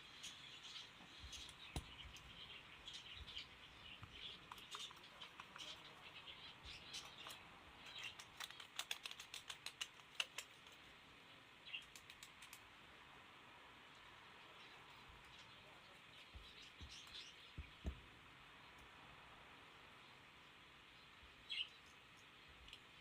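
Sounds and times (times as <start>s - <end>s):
faint bird chirping: 0.0s - 23.0s
small sharp clicks and taps: 7.0s - 10.8s, 11.8s - 12.7s.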